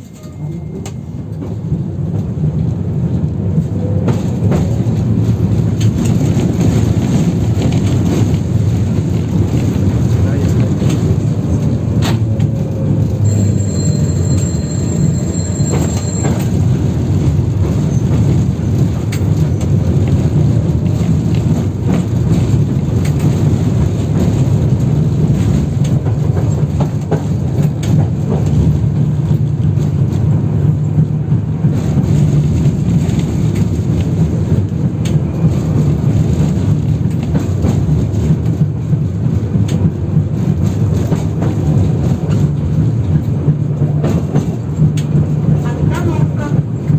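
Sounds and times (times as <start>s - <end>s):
tram running gear rumble: 0.0s - 46.9s
wheels clacking on track: 0.0s - 46.9s
thin high whine: 13.2s - 16.5s.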